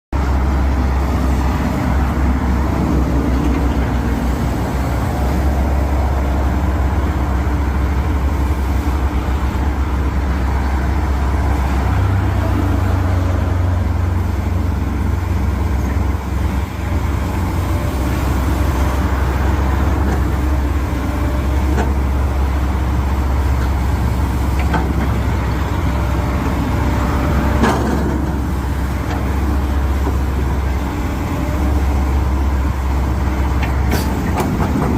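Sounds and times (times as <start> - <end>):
excavator diesel engine humming: 0.2 - 34.9.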